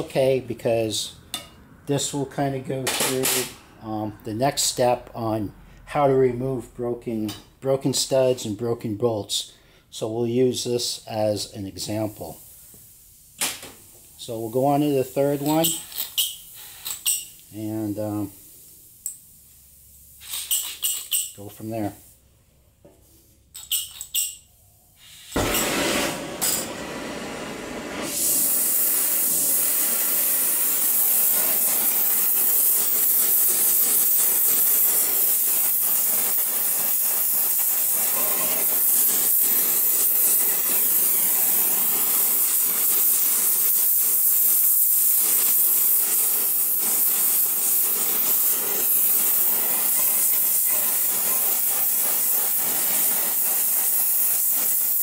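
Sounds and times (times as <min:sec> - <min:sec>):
gas torch hissing: 0:10.8 - 0:22.3, 0:23.6 - 0:55.0.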